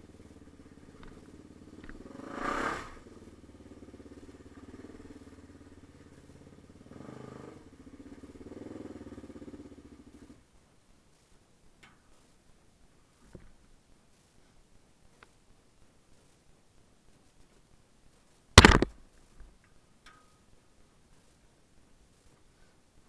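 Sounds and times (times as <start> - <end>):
dirt bike engine running: 0.0 - 10.2, 18.6 - 18.9.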